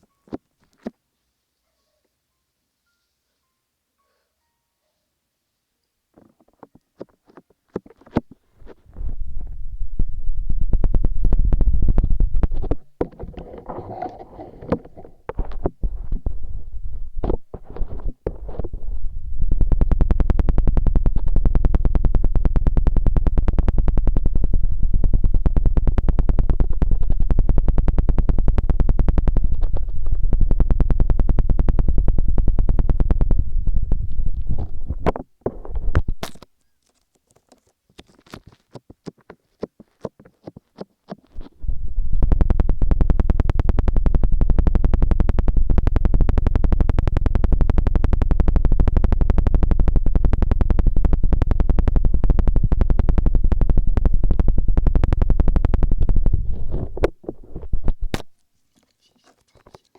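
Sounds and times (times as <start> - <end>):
fingers rubbing a microphone: 6.2 - 59.9
heavy low rumble: 8.8 - 12.7, 18.6 - 36.2, 41.5 - 57.0.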